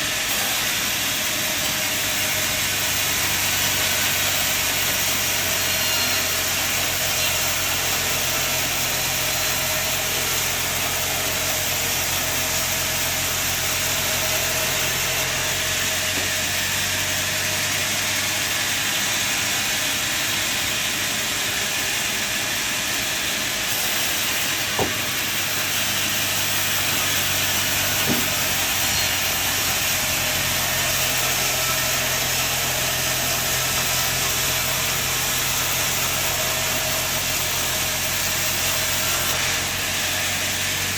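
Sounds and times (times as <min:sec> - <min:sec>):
sawmill machinery whine: 0:00.0 - 0:40.9
sharp knocks: 0:24.7 - 0:25.2, 0:28.0 - 0:29.1.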